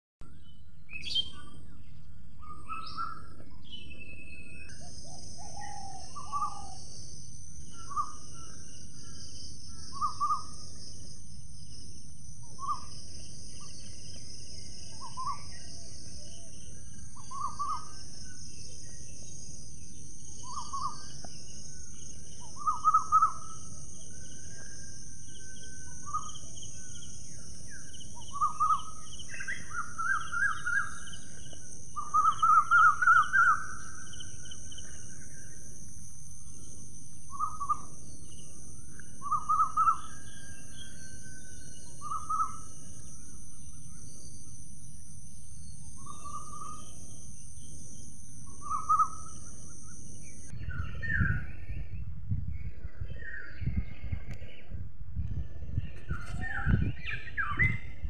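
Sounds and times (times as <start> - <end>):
high-pitched insect drone: 4.7 - 52.0
bird chattering calls: 22.5 - 23.6, 32.0 - 34.1.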